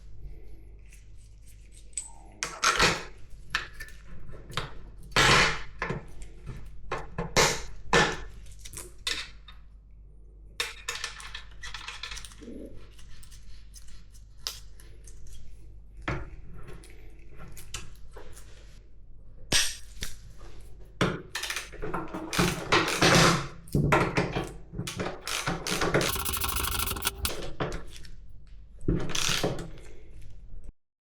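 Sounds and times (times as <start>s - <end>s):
metal scraping: 26.1s - 27.4s.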